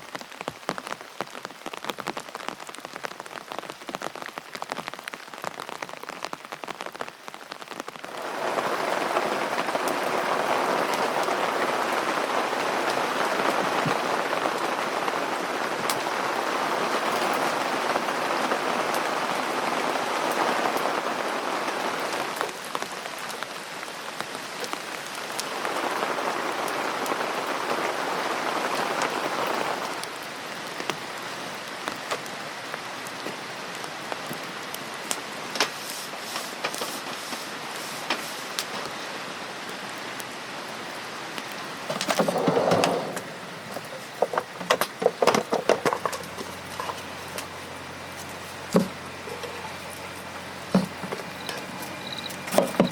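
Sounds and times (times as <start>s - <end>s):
steady rain falling: 0.0s - 52.9s
burst of noise: 41.8s - 52.9s
sharp ticks and pops: 50.7s - 52.9s.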